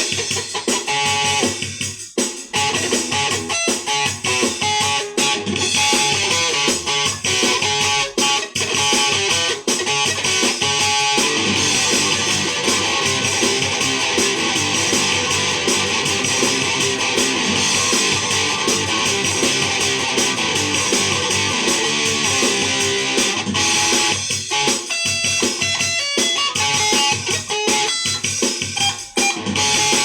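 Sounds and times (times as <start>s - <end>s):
guitar strumming and picking: 0.0s - 1.6s, 2.5s - 30.0s.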